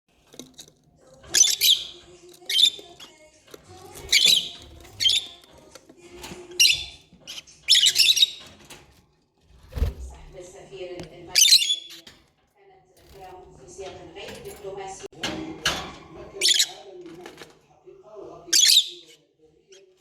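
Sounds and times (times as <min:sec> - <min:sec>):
lovebirds chirping: 0:01.1 - 0:08.6, 0:11.3 - 0:12.1, 0:18.5 - 0:20.0.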